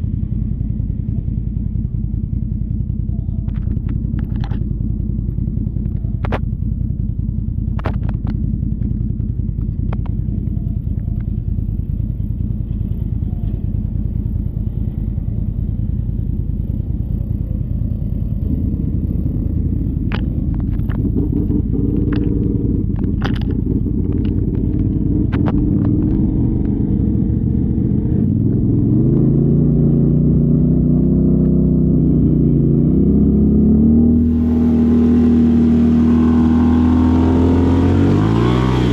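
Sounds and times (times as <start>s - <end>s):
vehicle engine rumbling: 0.0s - 38.9s
knocks and clatter: 7.7s - 9.0s, 20.0s - 26.8s.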